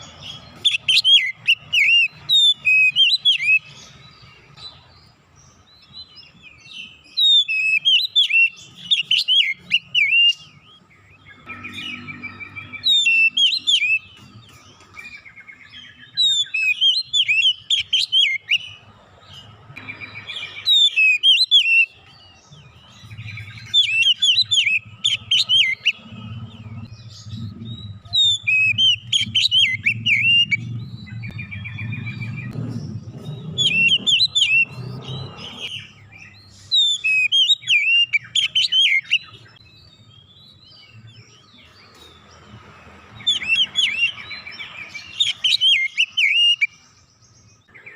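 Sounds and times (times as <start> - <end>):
bird singing whistles and chirps: 0.0 - 42.5, 43.1 - 47.9
low hum: 24.8 - 35.7.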